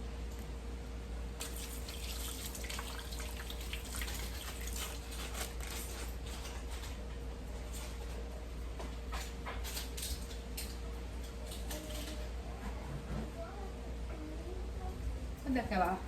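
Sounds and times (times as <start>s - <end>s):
tap water splashing in sink: 1.4s - 5.0s.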